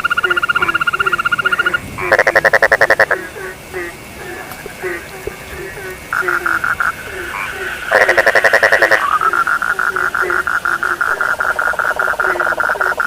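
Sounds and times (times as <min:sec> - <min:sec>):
frogs pulsed calls: 0:00.0 - 0:13.0
harsh pulsed frog call: 0:00.0 - 0:13.0
frog short low croaks: 0:05.9 - 0:13.0.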